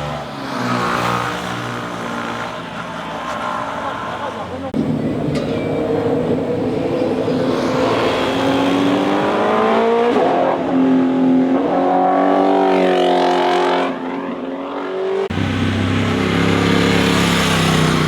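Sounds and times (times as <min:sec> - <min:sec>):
motorcycle engine accelerating: 0:14.6 - 0:18.0.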